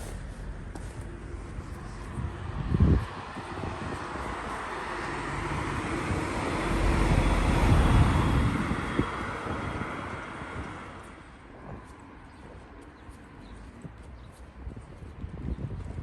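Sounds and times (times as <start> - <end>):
vehicle passing by: 0.0 - 12.3.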